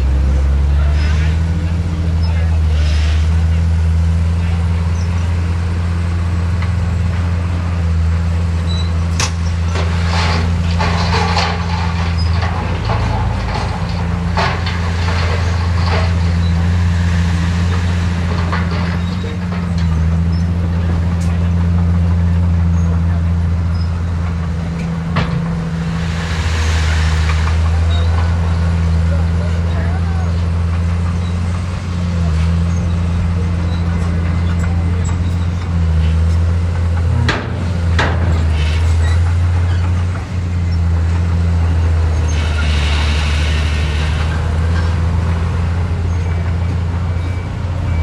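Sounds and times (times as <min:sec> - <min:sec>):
diesel engine droning: 0:00.0 - 0:48.0
clattering knocks: 0:24.1 - 0:28.5
brief hiss: 0:25.8 - 0:28.3.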